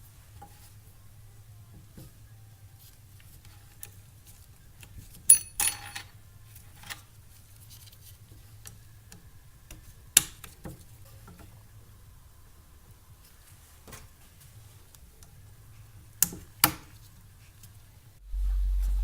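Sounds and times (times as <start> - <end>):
small metal parts clicking: 5.2 - 7.1
low steady hum: 17.3 - 19.0.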